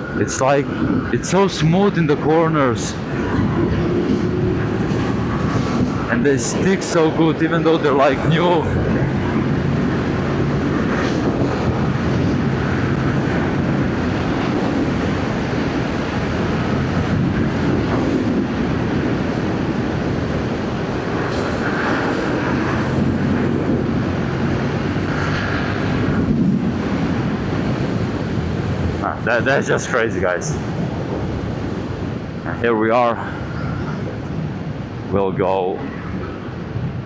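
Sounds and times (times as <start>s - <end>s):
wind rushing over microphone: 0.0s - 37.0s
motorcycle engine humming: 8.1s - 29.0s.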